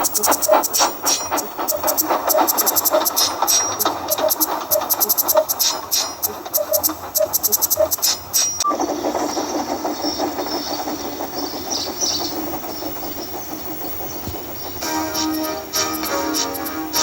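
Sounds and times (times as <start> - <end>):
steam train running: 0.0 - 17.0
beat-driven music: 14.8 - 17.0.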